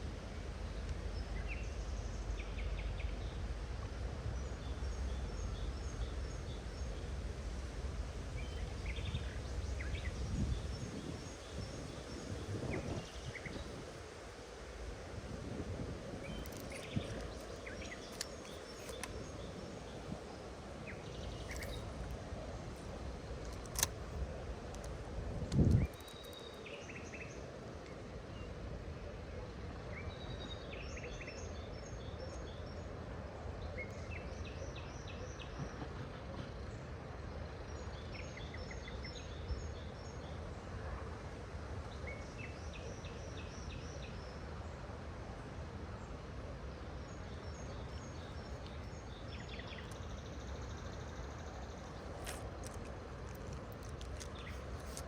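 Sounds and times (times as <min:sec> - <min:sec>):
low background rush: 0:00.0 - 0:55.0
small birds chirping: 0:16.2 - 0:27.3, 0:47.2 - 0:55.0.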